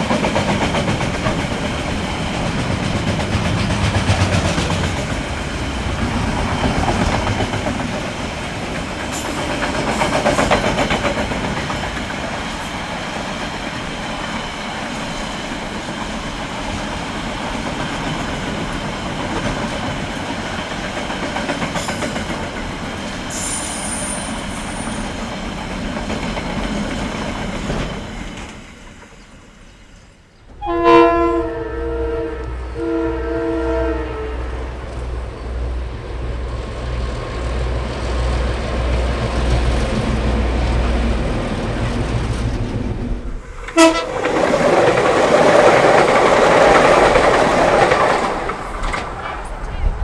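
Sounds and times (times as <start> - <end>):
rushing wheel-on-rail noise: 0.0 - 50.0
locomotive horn blasts: 30.6 - 35.0, 43.7 - 44.3.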